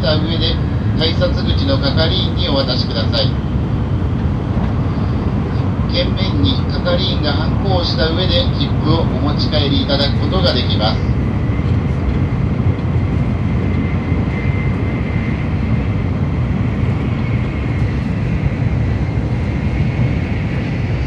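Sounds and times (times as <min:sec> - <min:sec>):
train interior low rumble: 0:00.0 - 0:21.0.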